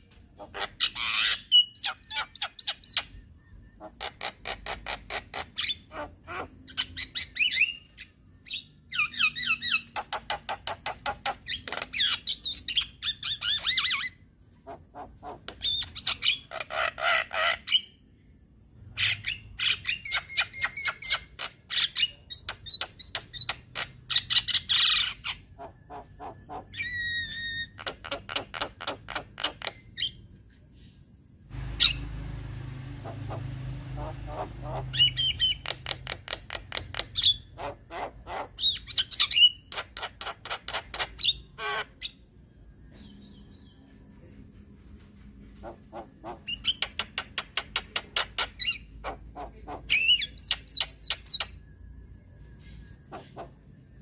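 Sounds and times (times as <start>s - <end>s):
low hum: 31.4s - 35.7s
myna song with rattles and whistles: 31.6s - 37.6s, 45.9s - 49.0s.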